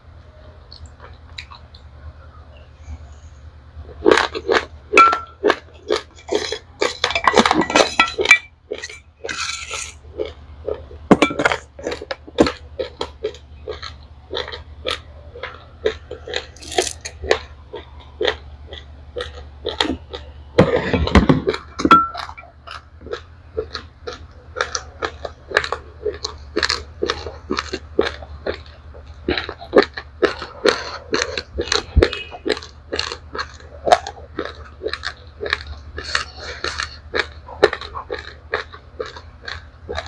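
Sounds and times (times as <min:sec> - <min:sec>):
crunching dry rice grains: 0:08.7 - 0:20.8, 0:21.5 - 0:40.0.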